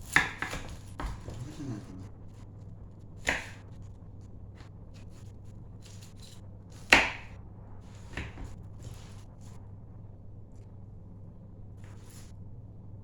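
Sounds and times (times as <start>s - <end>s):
low steady hum: 0.0s - 13.0s
knife striking cutting board: 0.1s - 1.6s, 3.2s - 3.6s, 5.8s - 9.2s.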